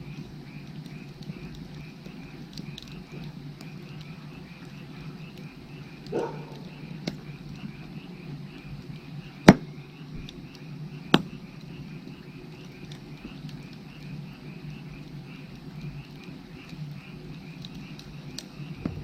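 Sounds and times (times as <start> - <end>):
firewood burning: 0.0 - 19.0
frogs chirping: 0.0 - 19.0
sharp fire pops: 0.6 - 7.8, 9.3 - 11.6, 17.5 - 19.0.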